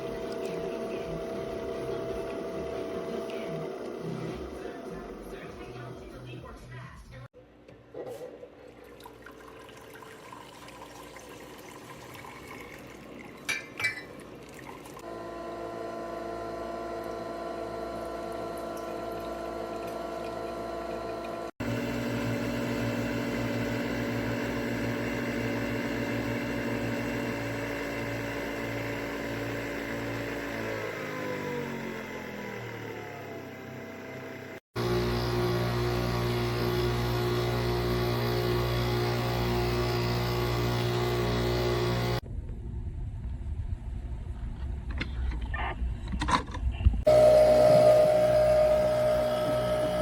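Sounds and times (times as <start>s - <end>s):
coffee machine pump hum: 0.0s - 6.4s, 8.6s - 42.2s, 47.0s - 50.0s
liquid pouring into cup: 8.6s - 15.0s.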